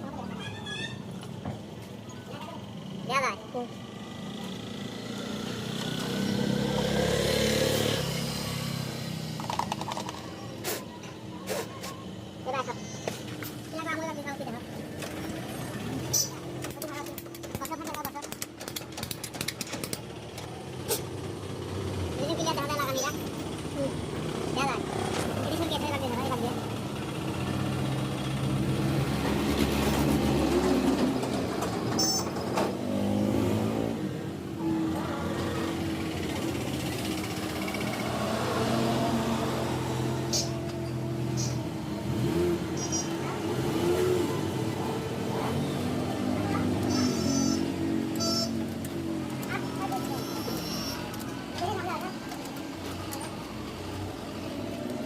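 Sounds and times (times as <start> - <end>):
sharp clicks: 16.6 - 20.5.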